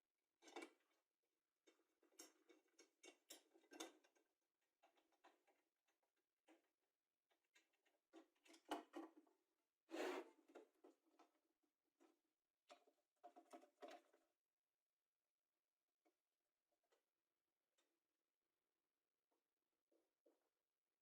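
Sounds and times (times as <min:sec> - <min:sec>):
small objects clicking and tapping: 0:01.6 - 0:05.6
loud scrape: 0:09.9 - 0:10.3.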